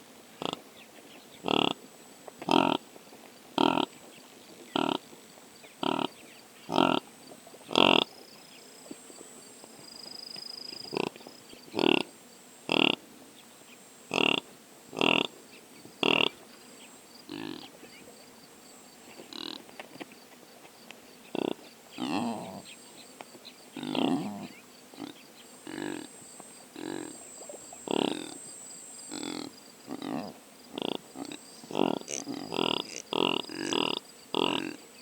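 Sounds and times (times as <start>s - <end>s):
faint high hum: 0.0s - 35.0s
impalas grunting: 6.7s - 7.0s, 21.3s - 22.7s, 23.8s - 26.1s, 26.8s - 27.2s, 27.8s - 28.4s, 29.1s - 34.8s.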